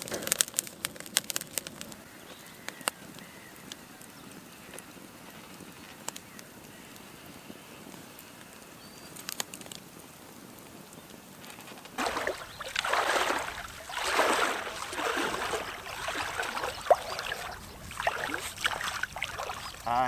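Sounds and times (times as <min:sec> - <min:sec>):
faint clicks: 0:02.6 - 0:09.9
water splashing and sloshing: 0:11.7 - 0:20.0.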